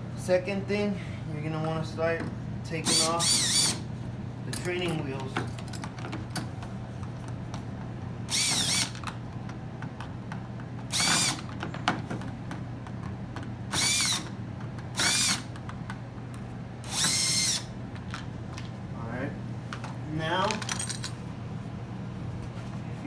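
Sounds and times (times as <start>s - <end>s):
power drill spinning: 2.8s - 3.8s, 8.3s - 9.0s, 10.9s - 11.5s, 13.7s - 14.4s, 15.0s - 15.5s, 16.8s - 17.8s.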